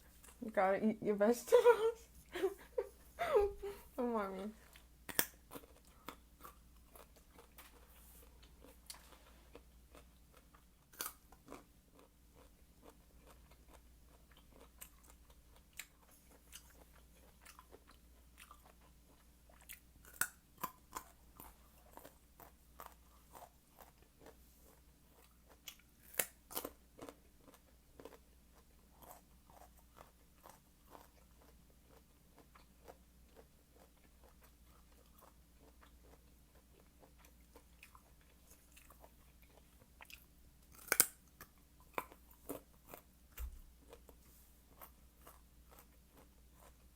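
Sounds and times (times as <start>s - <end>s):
chewing raw carrot: 4.6s - 46.9s.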